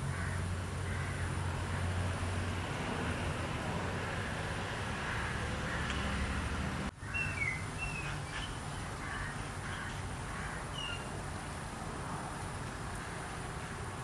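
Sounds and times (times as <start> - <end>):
steady background hiss: 0.0 - 14.0
bird chirping: 7.0 - 11.2.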